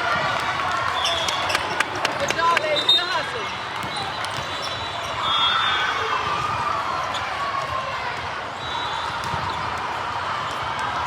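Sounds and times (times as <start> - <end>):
many voices talking: 0.0 - 11.0
sneakers squeaking on floor: 1.0 - 5.9.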